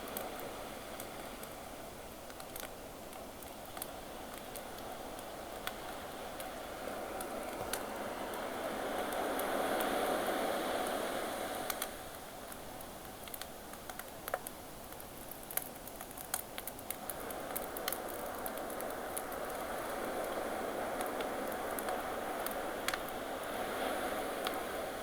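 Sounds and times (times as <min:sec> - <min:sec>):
campfire crackling and popping: 0:02.2 - 0:09.5, 0:10.8 - 0:23.6
sea waves washing: 0:05.9 - 0:12.1, 0:17.0 - 0:25.0.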